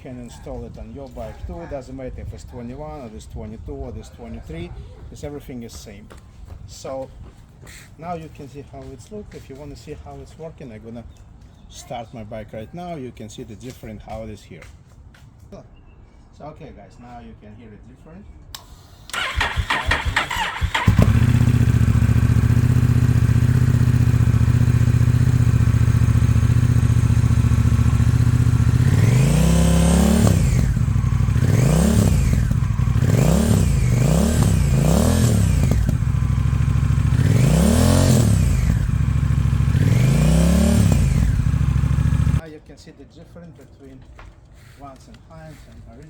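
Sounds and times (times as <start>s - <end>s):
motorcycle engine idling and revving: 19.1s - 42.4s.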